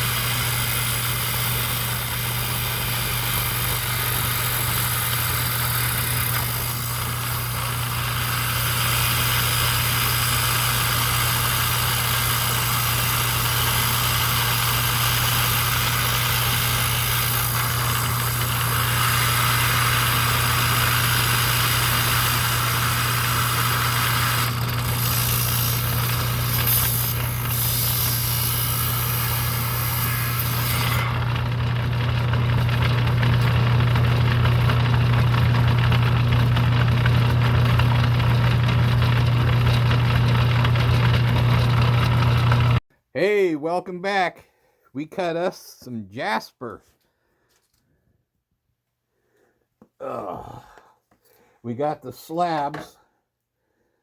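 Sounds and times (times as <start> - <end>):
saw blade grinding through stone: 0.0 - 32.4
electric motor humming: 0.0 - 42.8.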